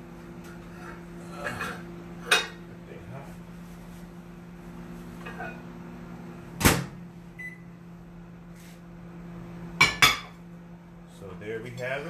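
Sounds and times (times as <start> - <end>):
steady low hum: 0.0 - 12.0
microwave beep: 7.3 - 7.8.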